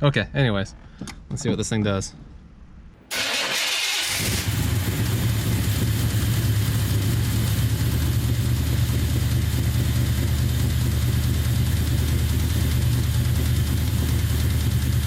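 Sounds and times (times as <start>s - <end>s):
car engine low drone: 3.0s - 15.0s.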